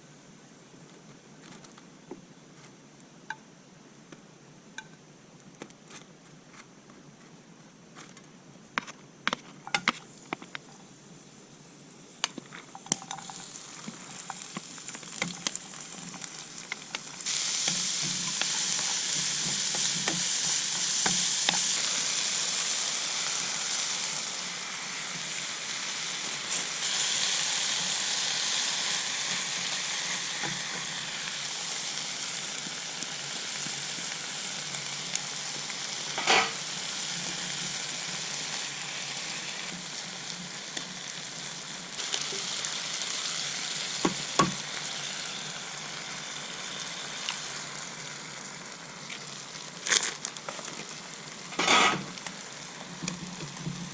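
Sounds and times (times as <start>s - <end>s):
rice sizzling in a pan: 8.8s - 53.9s.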